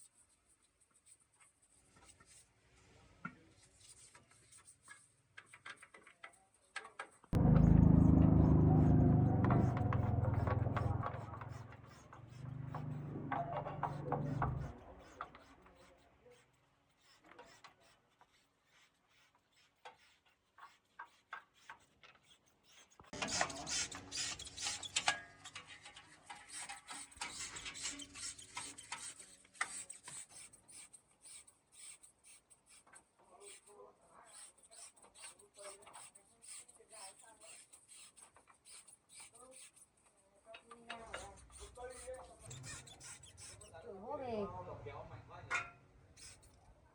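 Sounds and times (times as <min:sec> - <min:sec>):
low hum: 0:07.4 - 0:11.8.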